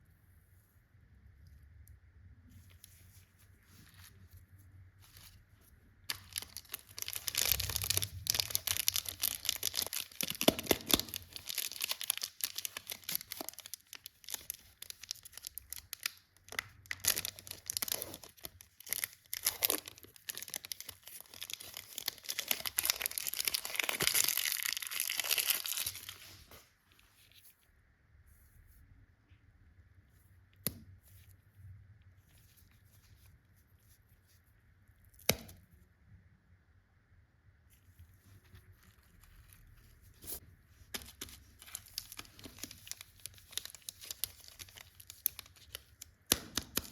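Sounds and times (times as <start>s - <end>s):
candy wrapper crinkling: 6.0s - 26.5s, 37.8s - 46.9s.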